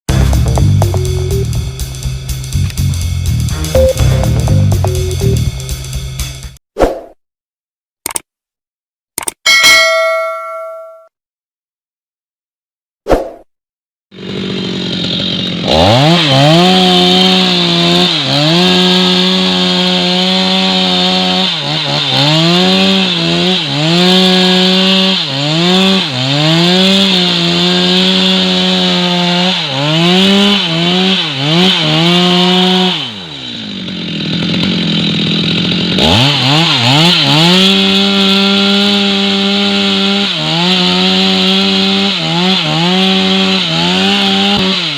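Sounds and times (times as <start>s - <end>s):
chainsaw cutting wood: 0.1s - 3.9s, 4.5s - 5.7s, 14.2s - 44.9s.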